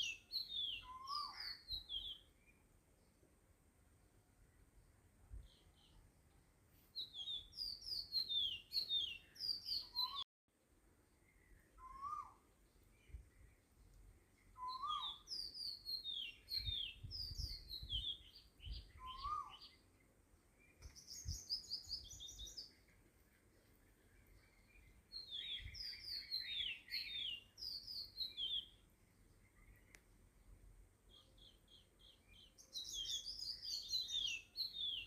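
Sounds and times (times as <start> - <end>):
lower bird calls: 0.0 - 2.6, 7.0 - 10.2, 11.2 - 13.6, 14.5 - 19.8, 24.0 - 28.8
birds chirping: 7.0 - 10.2, 11.1 - 35.0.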